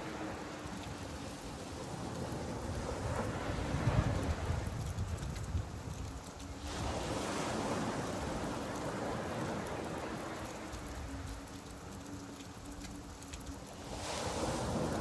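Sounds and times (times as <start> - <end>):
rain falling on a beach: 0.0 - 15.0
wave washing in and out: 6.6 - 10.9, 13.8 - 15.0.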